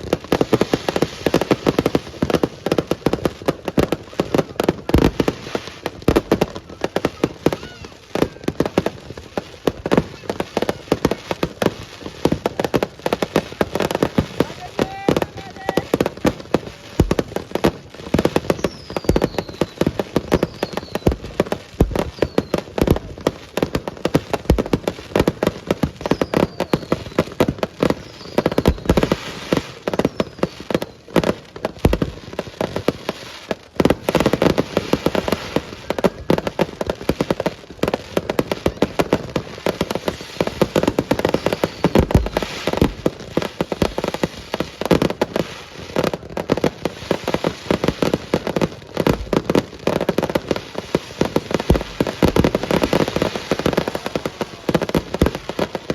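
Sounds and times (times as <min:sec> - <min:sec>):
fireworks bangs and crackling: 0:00.0 - 0:55.9
fireworks whistles falling in pitch: 0:03.8 - 0:11.6, 0:17.0 - 0:32.8, 0:38.2 - 0:45.0, 0:50.4 - 0:55.9.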